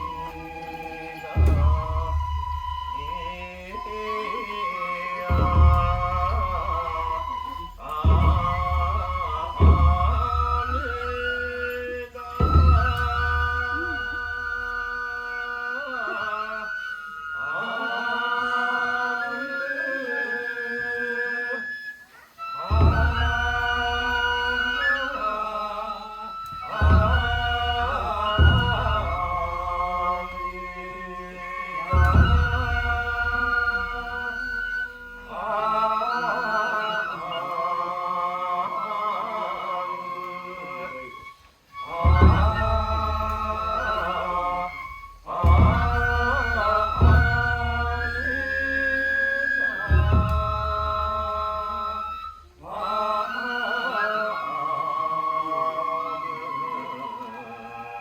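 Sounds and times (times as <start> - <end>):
drum beats: 0.0 - 15.0, 22.6 - 35.4, 41.7 - 52.6
voices chanting long notes: 0.0 - 58.0.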